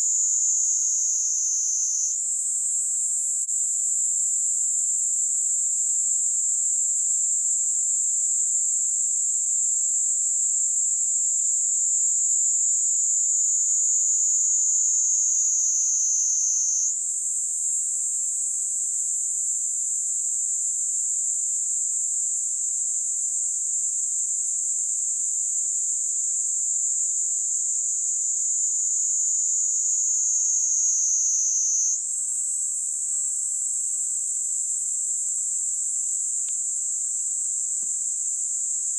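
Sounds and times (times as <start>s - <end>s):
cicada buzzing: 0.2s - 2.2s, 14.9s - 16.9s, 29.1s - 32.0s.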